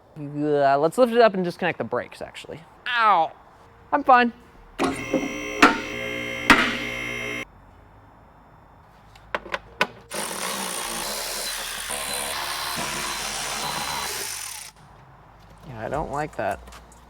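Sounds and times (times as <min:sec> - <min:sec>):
electric motor whirring: 0:04.8 - 0:07.4, 0:10.1 - 0:14.7
sharp clicks: 0:04.8 - 0:07.4.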